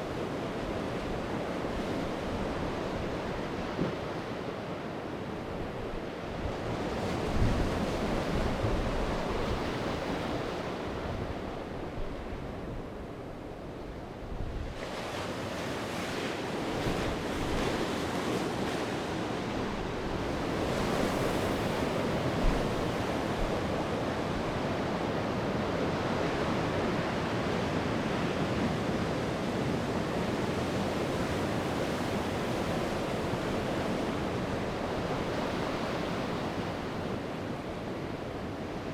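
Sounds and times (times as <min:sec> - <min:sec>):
sea waves breaking on shore: 0:14.6 - 0:38.9.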